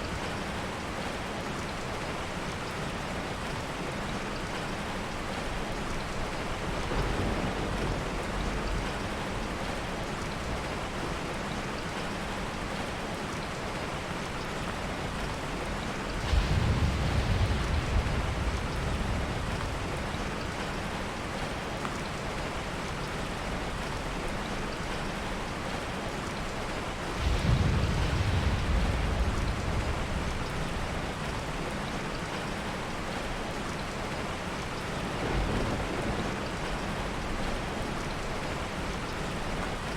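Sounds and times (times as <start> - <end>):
heavy rain falling: 0.0 - 39.9
soft thunder rolls: 6.6 - 10.7, 15.9 - 22.1, 27.0 - 32.5, 35.0 - 38.8.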